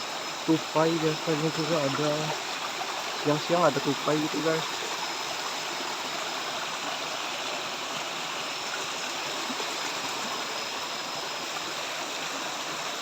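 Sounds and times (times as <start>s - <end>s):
faint high steady tone: 0.0s - 2.4s, 3.2s - 5.8s.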